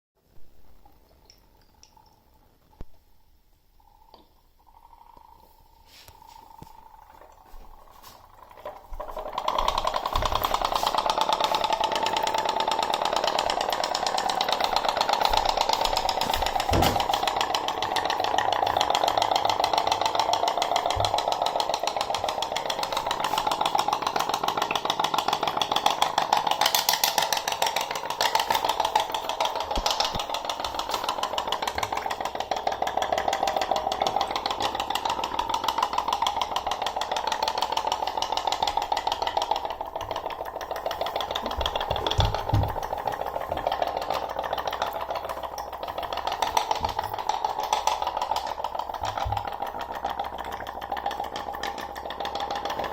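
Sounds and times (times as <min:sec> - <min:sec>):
toy boat puttering pops: 0:09.4 - 0:32.3.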